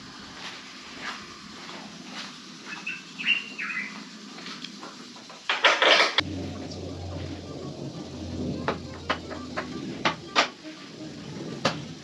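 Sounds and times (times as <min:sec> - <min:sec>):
high bird chirps: 0:02.7 - 0:04.1.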